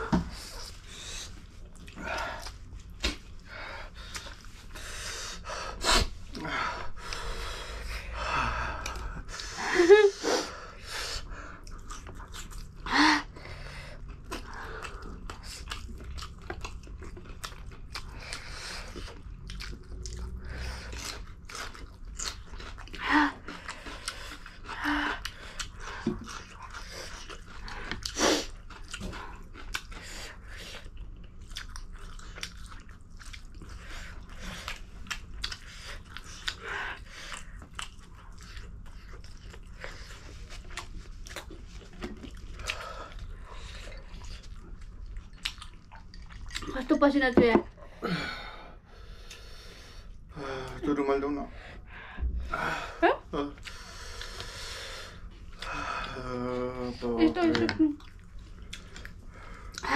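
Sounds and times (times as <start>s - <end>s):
chewing noodles: 10.5s - 47.0s, 53.5s - 59.9s.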